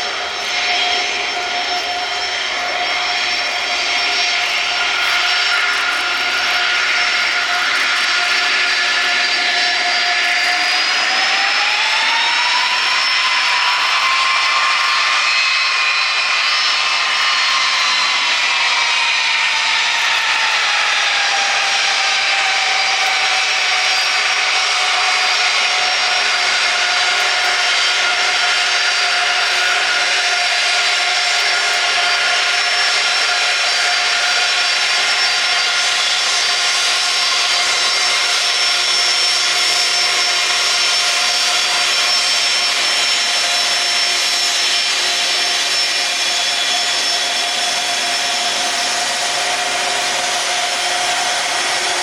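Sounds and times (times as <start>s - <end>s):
jet engines whining: 0.0s - 52.0s.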